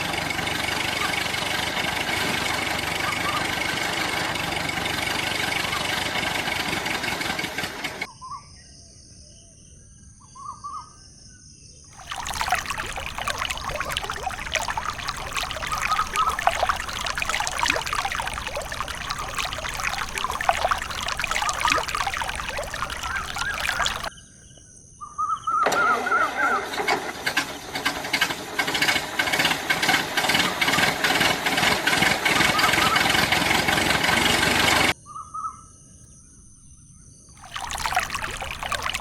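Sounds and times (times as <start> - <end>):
water pouring and splashing: 12.0 - 24.1, 37.4 - 39.0.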